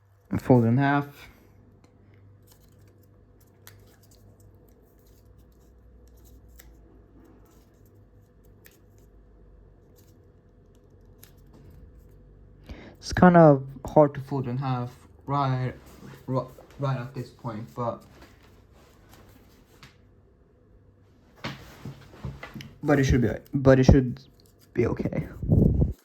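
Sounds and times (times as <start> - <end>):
low steady hum: 0.0 - 26.0
paper crinkling and crackling: 2.4 - 12.2, 14.2 - 19.9, 21.4 - 26.0.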